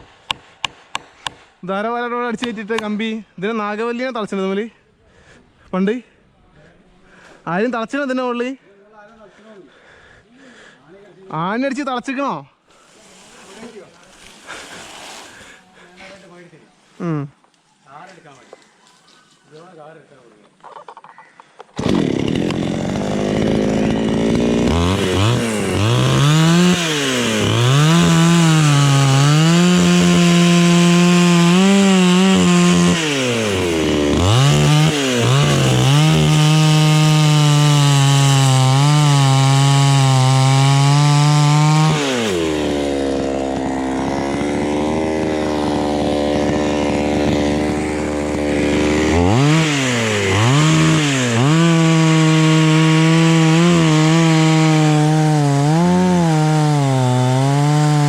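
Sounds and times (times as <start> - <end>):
chainsaw cutting wood: 0.0 - 1.6, 21.7 - 58.0.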